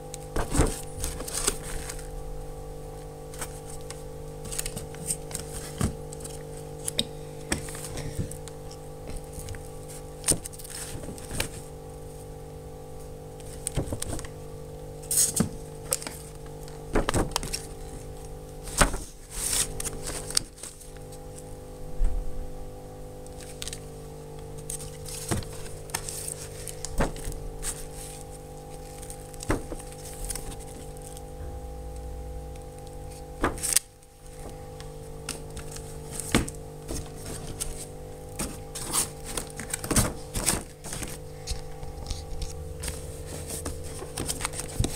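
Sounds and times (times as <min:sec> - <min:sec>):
steady humming drone: 0:00.0 - 0:44.9
items knocking and clicking: 0:29.0 - 0:30.9, 0:38.4 - 0:44.9.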